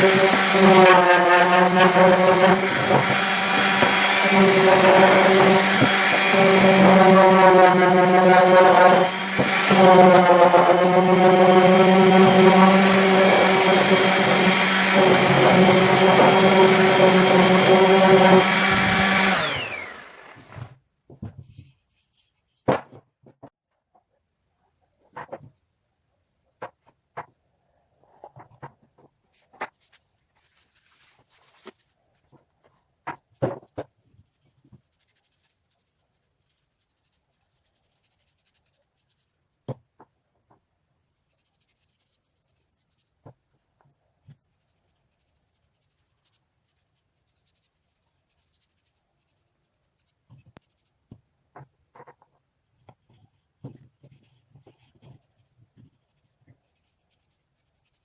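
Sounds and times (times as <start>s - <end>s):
scraping and rubbing: 0.0s - 20.6s, 28.1s - 32.8s.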